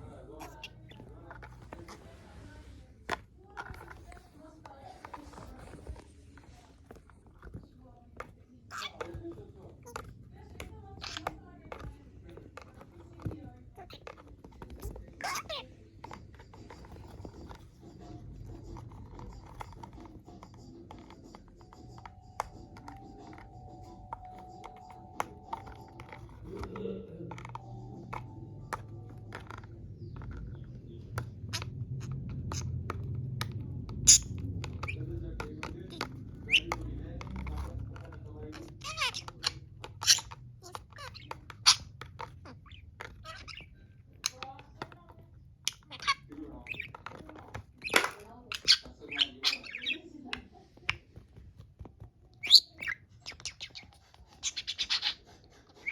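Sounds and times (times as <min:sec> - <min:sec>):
bird pecking at a toy: 0:00.0 - 0:55.9
budgerigar chirping and squawking: 0:00.1 - 0:02.2, 0:08.7 - 0:11.8, 0:13.8 - 0:26.8, 0:27.6 - 0:44.7, 0:45.5 - 0:50.2, 0:52.3 - 0:55.9.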